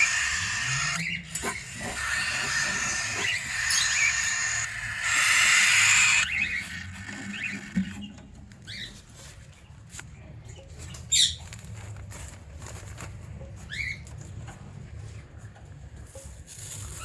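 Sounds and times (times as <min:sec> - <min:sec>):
cockatiels chirping: 0:00.0 - 0:07.6.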